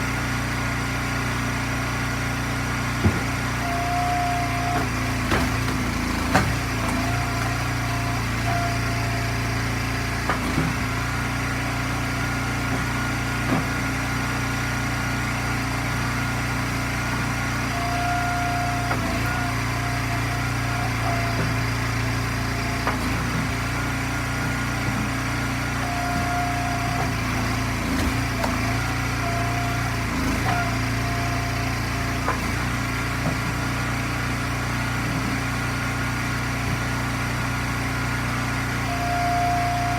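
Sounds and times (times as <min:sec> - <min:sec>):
small gas engine running: 0:00.0 - 0:39.9
wood splitting knocks: 0:03.0 - 0:09.4, 0:10.0 - 0:11.7, 0:12.3 - 0:14.0, 0:18.0 - 0:35.5
short high-pitched whines: 0:38.8 - 0:39.9.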